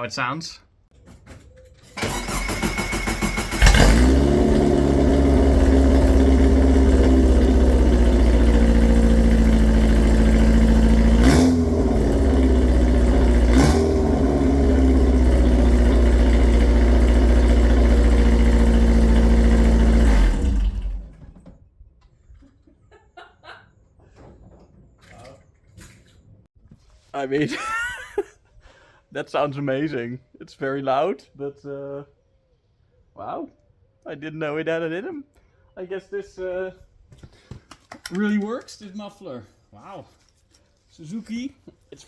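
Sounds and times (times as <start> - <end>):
starter motor cranking: 1.9 - 21.4
loud engine idling and revving: 2.1 - 21.4.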